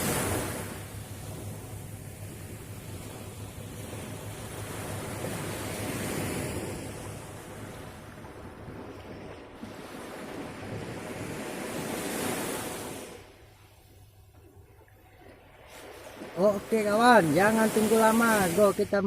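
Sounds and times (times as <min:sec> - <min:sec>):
wind on microphone: 0:00.0 - 0:13.3
sea waves washing in: 0:00.0 - 0:19.0.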